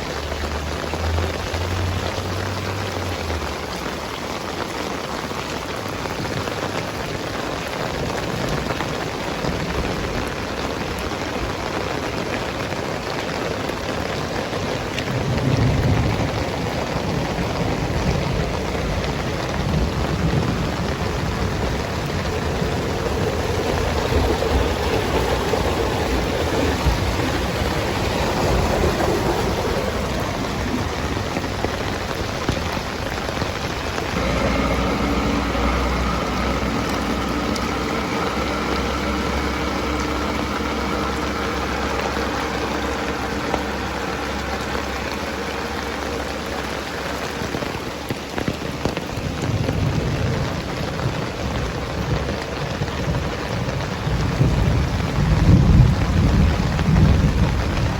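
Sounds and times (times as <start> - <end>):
heavy rain falling: 0.0 - 57.9
low rumble: 14.8 - 57.9.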